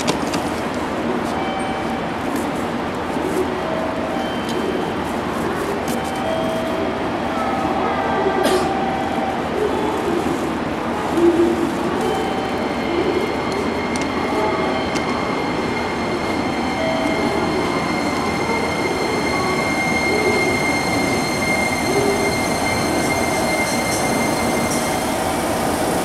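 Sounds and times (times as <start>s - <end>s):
high whine of electric train: 0.0s - 26.0s
train wheels rumbling: 10.5s - 26.0s.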